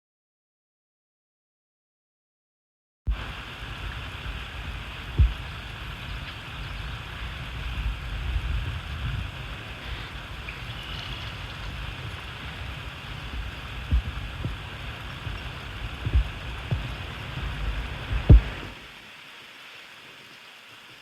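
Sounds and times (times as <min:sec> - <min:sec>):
wind on microphone: 0:03.1 - 0:18.8
water moving around canoe: 0:03.1 - 0:18.9
faint hiss: 0:03.1 - 0:21.0
dull low knocks: 0:03.9 - 0:09.4, 0:10.6 - 0:18.7.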